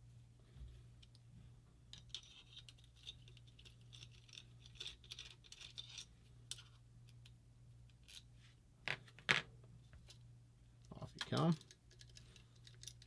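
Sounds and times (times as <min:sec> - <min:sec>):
low steady hum: 0:00.0 - 0:13.0
scratching and clicks of small parts: 0:01.9 - 0:08.3, 0:10.8 - 0:13.0.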